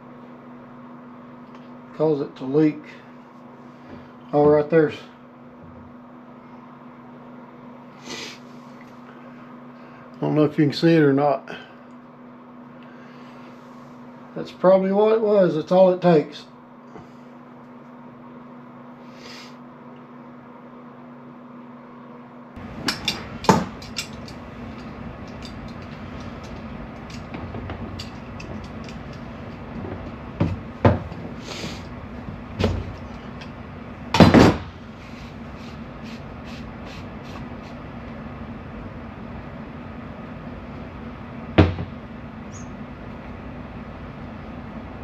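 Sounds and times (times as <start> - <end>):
steady low hum: 0.0 - 45.0
knocks and clicks of parts handled: 22.8 - 31.4.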